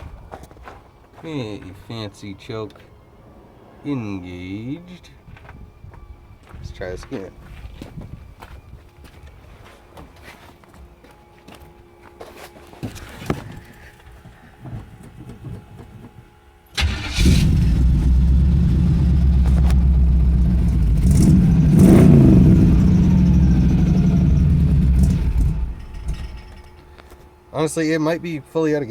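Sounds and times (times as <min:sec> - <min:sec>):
car engine starting and running: 0:16.8 - 0:26.9.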